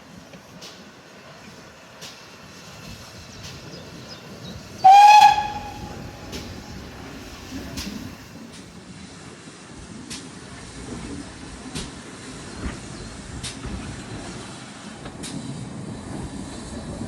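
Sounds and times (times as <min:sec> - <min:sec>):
steam locomotive whistle blast: 0:04.8 - 0:06.9.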